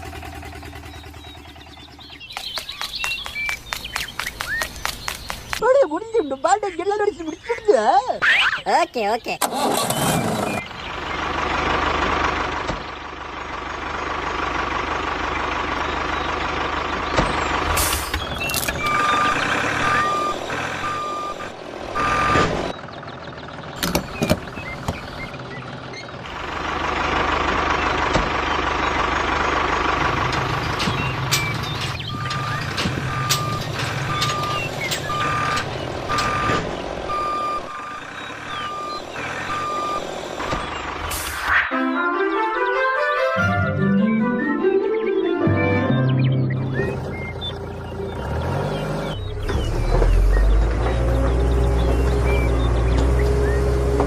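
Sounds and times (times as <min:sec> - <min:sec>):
reversing alarm beeping: 0:18.8 - 0:22.5, 0:31.0 - 0:40.9.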